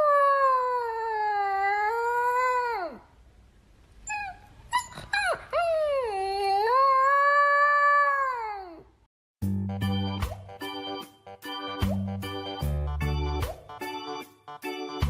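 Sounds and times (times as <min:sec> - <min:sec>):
dog yipping: 0:04.1 - 0:05.8
organ music: 0:09.5 - 0:15.0.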